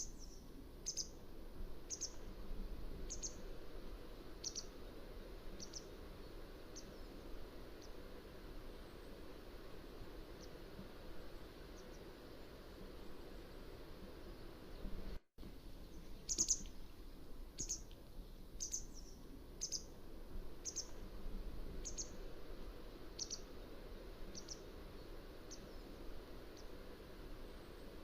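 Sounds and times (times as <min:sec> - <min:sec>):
bird calling high-pitched: 0:00.0 - 0:01.2, 0:01.9 - 0:02.2, 0:04.4 - 0:04.7, 0:16.2 - 0:16.7, 0:17.6 - 0:17.9, 0:18.6 - 0:19.9, 0:20.6 - 0:20.9, 0:23.2 - 0:23.5
background hiss: 0:00.0 - 0:28.0.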